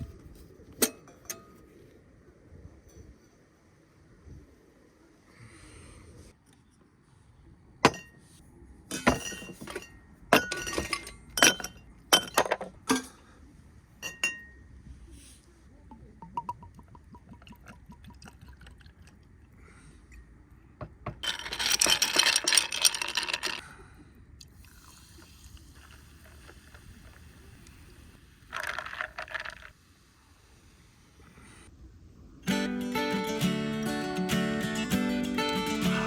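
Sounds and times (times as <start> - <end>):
glassware clinking: 7.8 - 8.2, 8.9 - 13.1, 14.0 - 14.6
liquid being poured: 16.0 - 19.3, 24.5 - 29.8.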